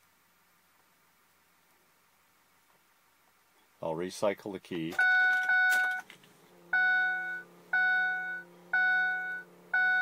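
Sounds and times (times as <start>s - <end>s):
fuel pump humming: 5.0s - 10.0s.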